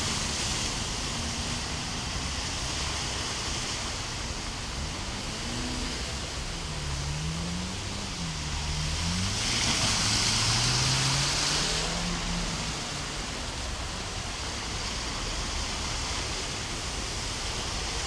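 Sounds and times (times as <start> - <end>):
floodwater rushing: 0.0 - 18.0
heavy rain: 0.0 - 18.0.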